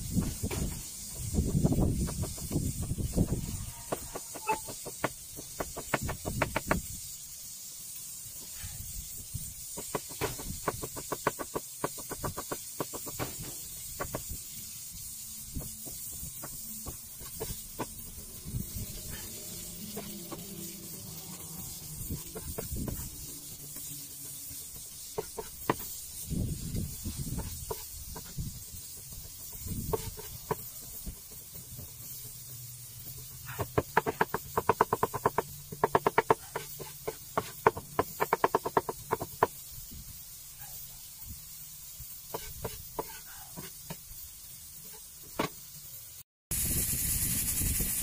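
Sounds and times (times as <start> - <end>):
steady hiss: 0.0 - 48.0
knocking strokes crushing garlic: 0.1 - 7.0, 9.7 - 14.6, 15.5 - 32.5, 33.2 - 39.7, 42.3 - 44.1.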